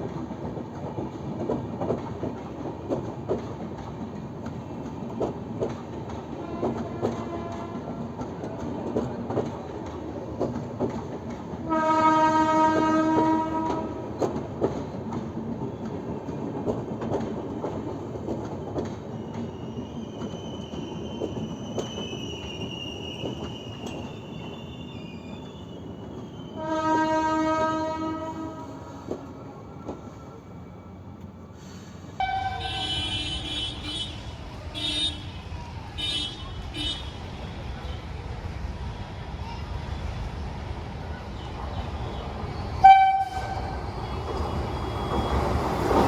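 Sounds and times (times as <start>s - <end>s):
train rumble and clickety-clack: 0.0s - 46.0s
train horn blast: 6.4s - 8.1s, 11.6s - 14.1s, 26.5s - 29.1s, 32.1s - 37.2s, 42.8s - 43.8s.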